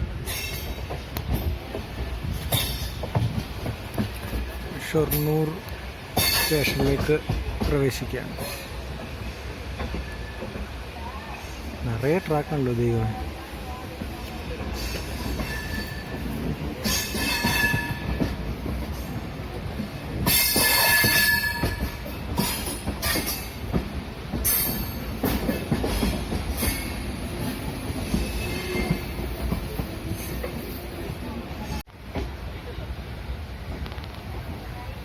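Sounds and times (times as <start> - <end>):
train wheels rumbling on rails: 0.0 - 35.0
wheels knocking at rail joints: 0.2 - 10.8, 13.8 - 30.7
high wheel squeal: 28.1 - 29.2.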